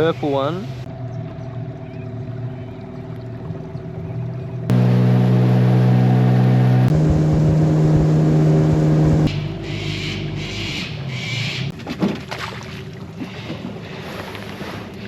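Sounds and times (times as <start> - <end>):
outboard motor running: 0.9 - 11.6.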